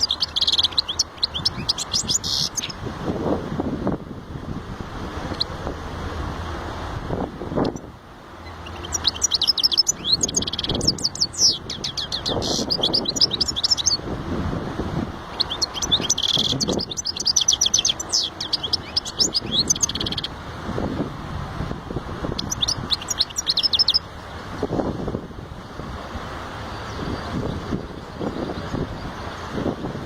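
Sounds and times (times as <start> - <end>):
goldfinch twittering song: 0.0 - 2.8, 5.3 - 5.6, 7.6 - 14.1, 15.3 - 20.4, 22.2 - 24.1, 26.6 - 29.7.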